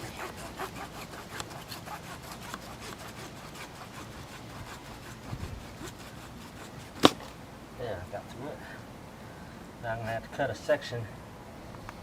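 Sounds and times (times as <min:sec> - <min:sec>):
handsaw cutting plastic pipe: 0:00.0 - 0:07.4.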